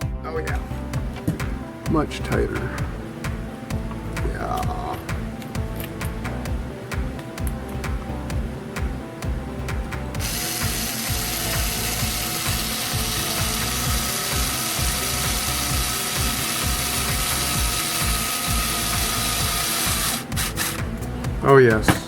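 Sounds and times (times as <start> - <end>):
faint background music: 0.0 - 22.0
mechanical ratcheting clatter: 10.2 - 20.8.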